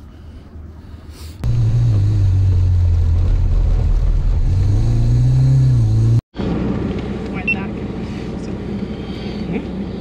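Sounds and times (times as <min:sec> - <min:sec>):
car engine running hard: 0:01.4 - 0:10.0.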